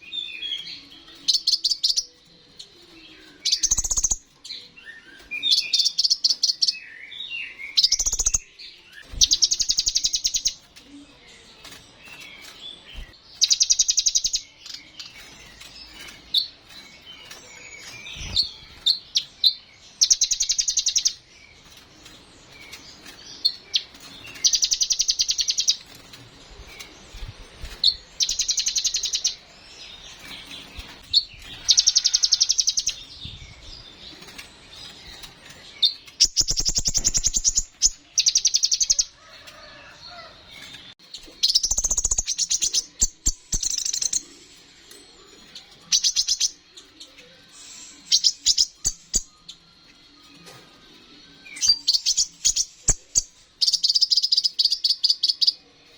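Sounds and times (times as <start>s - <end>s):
twittering bird chirps: 3.2s - 10.7s, 27.1s - 40.3s, 41.2s - 49.7s.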